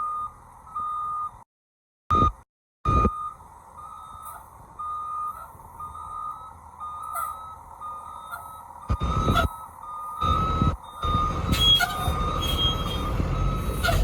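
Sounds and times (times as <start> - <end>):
back-up alarm beeping: 0.0 - 1.4, 2.1 - 14.0.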